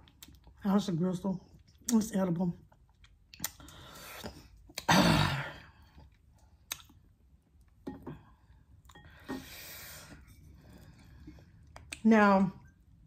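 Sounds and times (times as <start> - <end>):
mouth clicks and smacks: 2.7 - 4.9, 6.4 - 7.2, 11.6 - 12.1.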